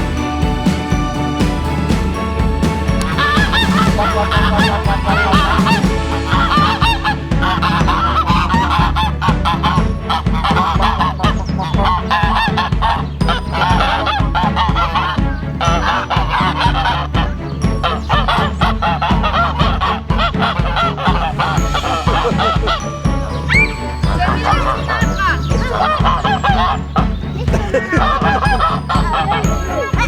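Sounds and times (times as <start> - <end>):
geese honking: 0.0 - 30.0.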